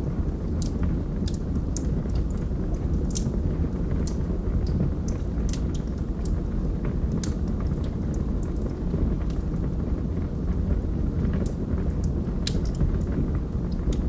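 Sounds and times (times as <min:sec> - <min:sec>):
fire rumbling: 0:00.0 - 0:14.0
logs crackling and popping: 0:00.2 - 0:14.0.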